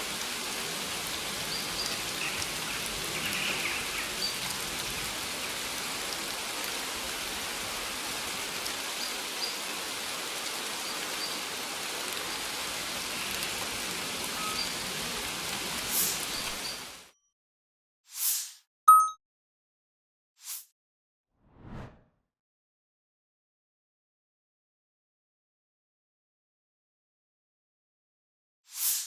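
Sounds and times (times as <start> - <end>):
rain on leaves: 0.0 - 17.1
brief swish: 21.4 - 22.1.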